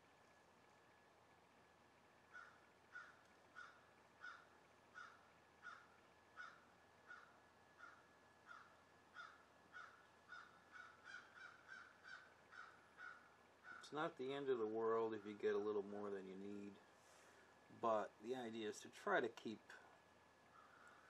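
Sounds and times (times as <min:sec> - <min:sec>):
faint bird calling: 0:02.2 - 0:14.0, 0:15.0 - 0:15.7, 0:19.7 - 0:21.0.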